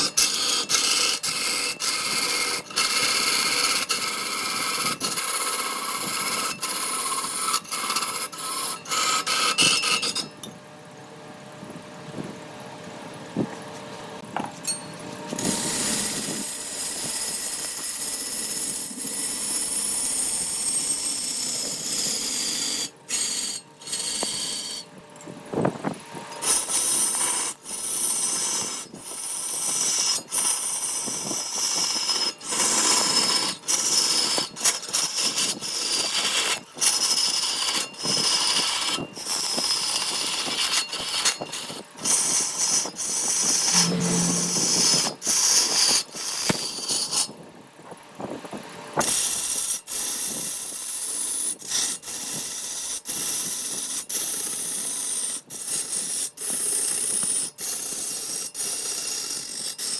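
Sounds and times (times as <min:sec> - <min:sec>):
power tool cutting wood: 0:15.3 - 0:24.9, 0:26.4 - 0:47.3.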